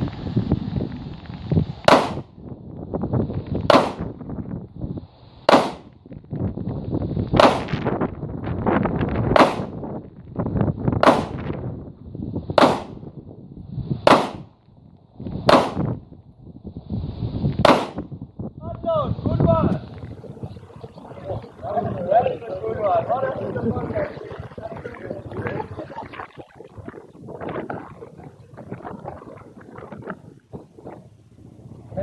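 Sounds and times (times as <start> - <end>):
pistol shots: 1.9 - 2.2, 3.7 - 4.1, 5.5 - 5.9, 7.4 - 7.8, 9.4 - 9.8, 11.0 - 11.4, 12.6 - 13.0, 14.1 - 14.5, 15.5 - 15.9, 17.6 - 18.1.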